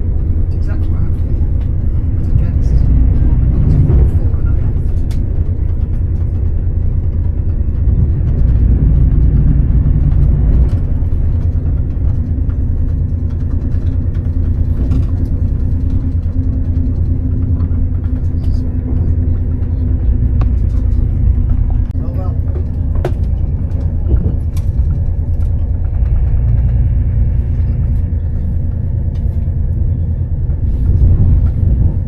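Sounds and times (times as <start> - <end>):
train rumbling inside carriage: 0.0 - 32.0.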